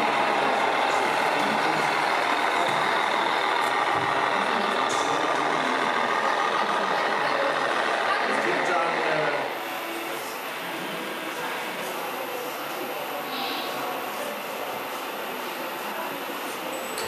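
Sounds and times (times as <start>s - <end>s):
truck engine sound: 0.0s - 12.2s.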